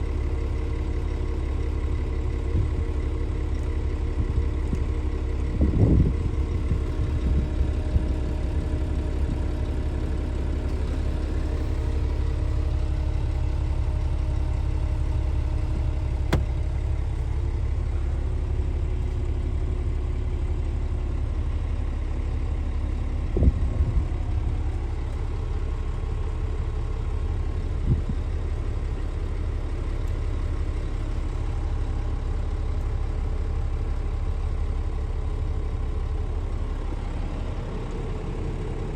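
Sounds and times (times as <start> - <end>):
diesel truck idling: 0.0 - 38.9
brief knocks: 16.3 - 16.6.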